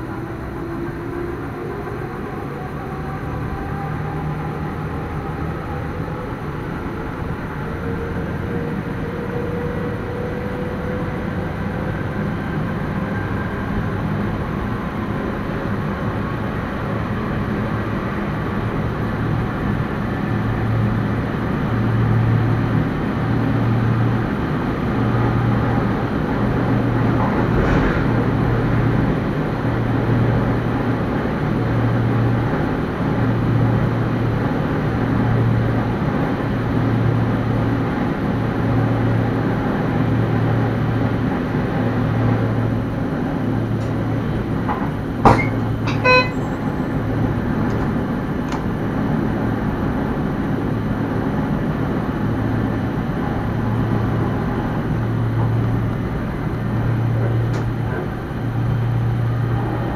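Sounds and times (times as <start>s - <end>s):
short high tone: 45.3s - 46.8s.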